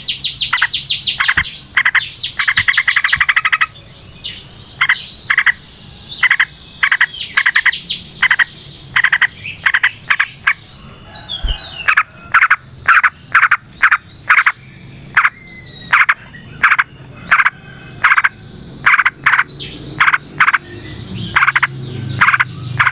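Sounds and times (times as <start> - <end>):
short repeated calls: 15.2 - 19.4, 20.0 - 20.6, 21.3 - 22.9.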